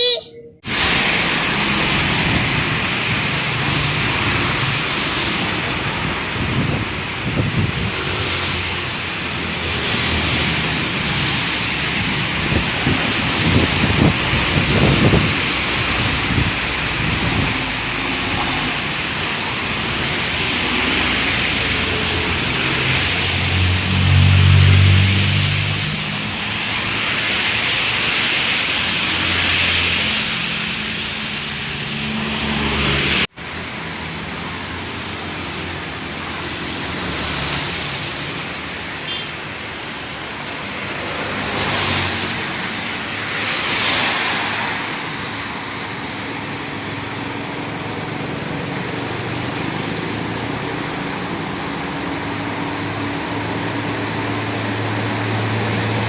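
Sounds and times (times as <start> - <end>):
rain and tyre spray hiss: 0.7 - 56.0
heavy engines running: 45.8 - 56.0.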